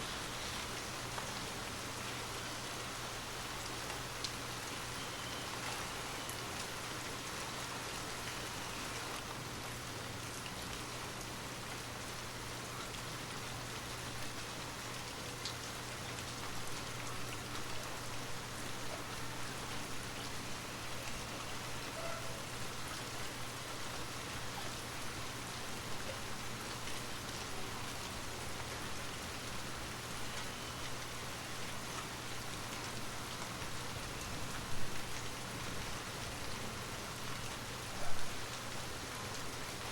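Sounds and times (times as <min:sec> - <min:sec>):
rain hissing: 0:00.0 - 0:12.8.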